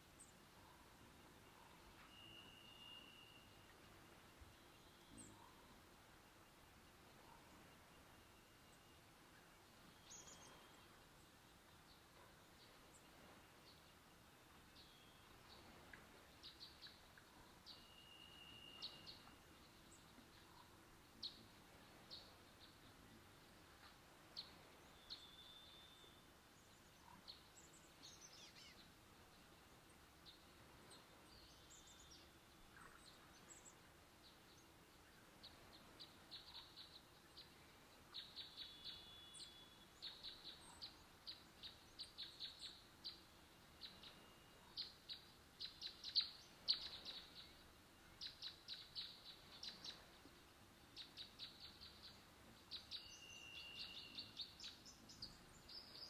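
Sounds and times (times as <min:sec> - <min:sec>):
birds chirping: 0:00.1 - 0:56.0
bird whistling: 0:02.0 - 0:03.6.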